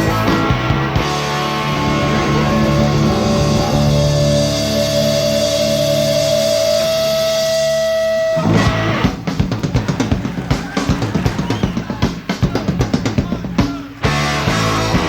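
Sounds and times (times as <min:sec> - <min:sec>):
drum kit hits: 0:08.4 - 0:14.2.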